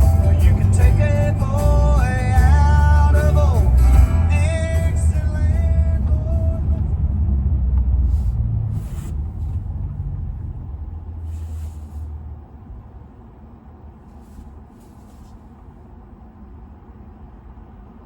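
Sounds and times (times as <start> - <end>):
electric car deep low rumble: 0.0 - 18.0
short hisses: 8.0 - 9.5, 11.2 - 12.2, 14.1 - 15.5.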